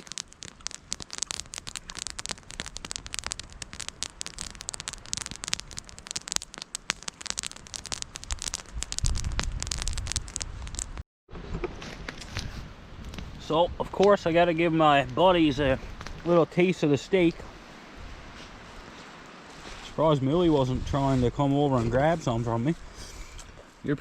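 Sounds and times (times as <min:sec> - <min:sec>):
campfire crackling and popping: 0:00.0 - 0:11.0, 0:12.1 - 0:16.4.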